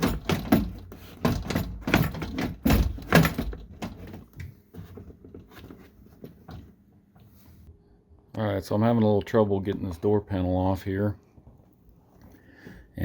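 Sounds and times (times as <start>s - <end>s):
plastic door panel rattling: 0.0s - 4.3s.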